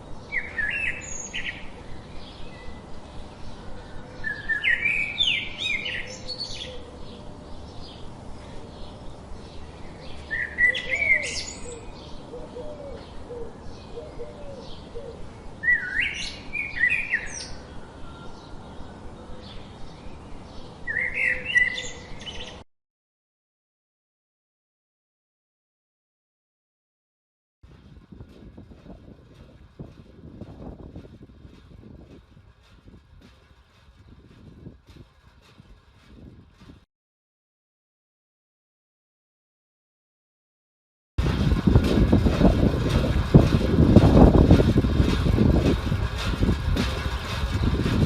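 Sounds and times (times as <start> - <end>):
bird singing chirping phrases: 0.0 - 22.6.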